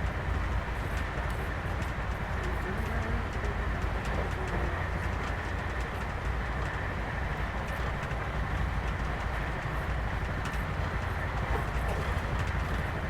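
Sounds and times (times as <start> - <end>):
passenger train rumbling: 0.0 - 13.0.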